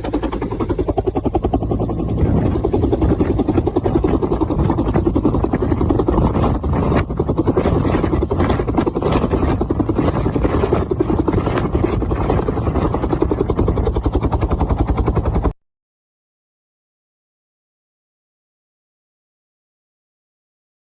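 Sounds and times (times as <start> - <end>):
helicopter rotor beating: 0.0 - 15.6.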